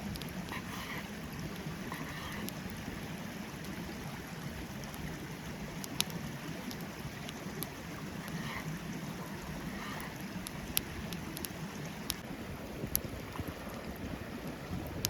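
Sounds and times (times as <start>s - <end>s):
stream running: 0.0s - 15.0s
campfire crackling pops: 5.8s - 8.4s, 10.4s - 12.2s.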